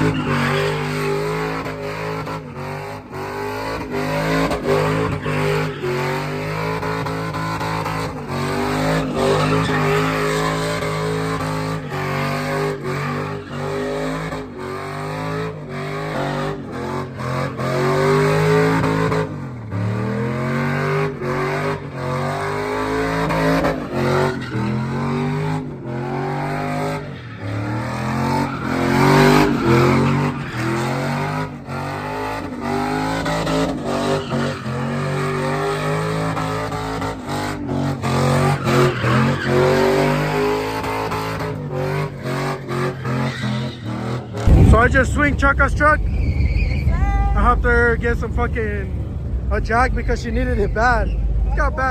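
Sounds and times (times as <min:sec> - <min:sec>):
truck engine revving: 0:00.0 - 0:51.9
tyres squealing: 0:08.3 - 0:14.3, 0:42.6 - 0:48.5.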